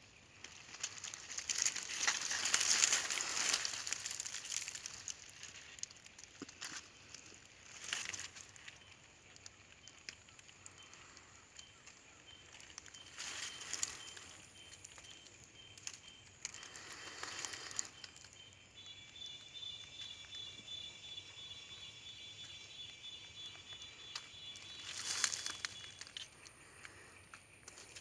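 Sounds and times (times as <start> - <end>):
rustling and crackling leaves: 0.0 - 28.0.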